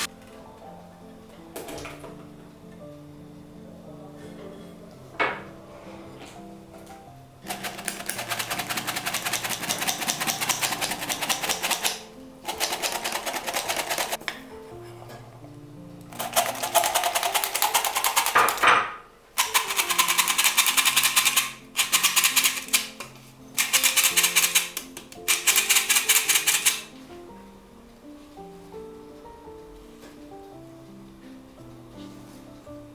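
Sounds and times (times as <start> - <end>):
soft background music: 0.0 - 32.9
fast even clicking: 7.4 - 14.2, 16.1 - 18.6, 19.4 - 26.9.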